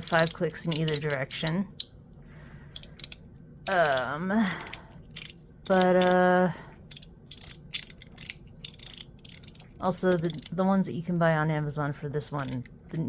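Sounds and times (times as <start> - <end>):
fidget slider clicking: 0.0 - 1.9, 2.7 - 10.6, 12.4 - 12.7.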